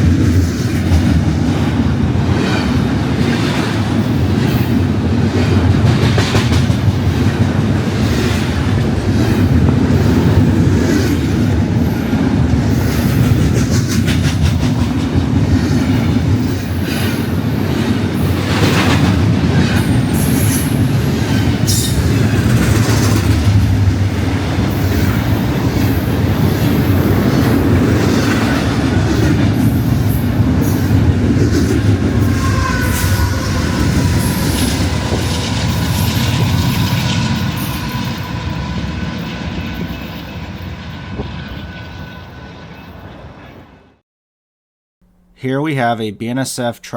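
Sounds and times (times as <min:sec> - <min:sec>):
freight cars rumbling past: 0:20.7 - 0:43.4
high wheel squeal: 0:32.0 - 0:43.1.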